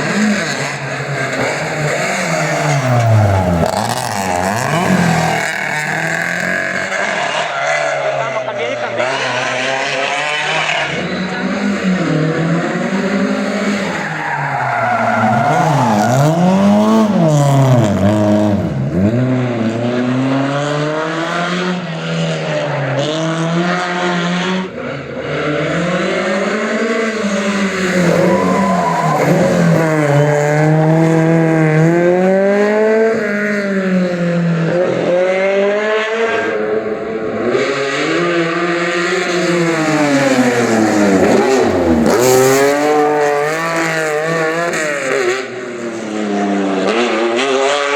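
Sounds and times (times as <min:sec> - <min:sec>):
rally car engine revving: 0:00.0 - 0:47.9
tyre squeal: 0:01.1 - 0:06.0, 0:27.1 - 0:30.8.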